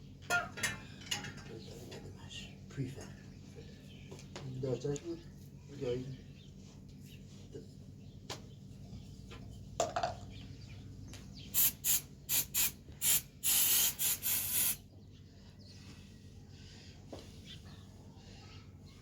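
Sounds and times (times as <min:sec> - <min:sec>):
aerosol spray can hissing: 0:11.6 - 0:14.8.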